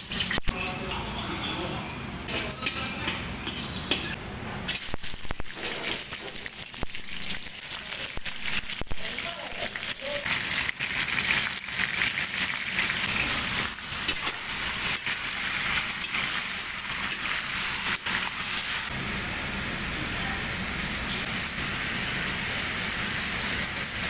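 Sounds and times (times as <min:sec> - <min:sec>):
food sizzling in hot oil: 0:00.0 - 0:00.5, 0:02.2 - 0:24.0.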